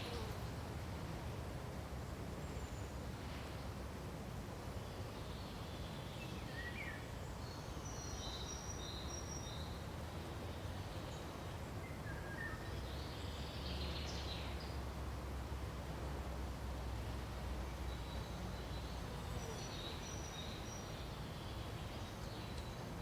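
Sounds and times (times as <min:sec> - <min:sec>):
songbirds chirping: 0:04.7 - 0:15.3, 0:17.0 - 0:23.0.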